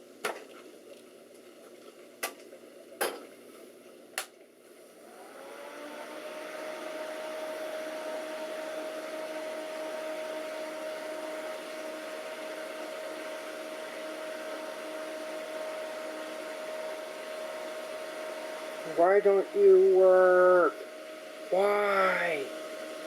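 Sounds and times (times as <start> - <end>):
computer fans whirring: 5.0 - 23.0
steady hum: 15.6 - 23.0.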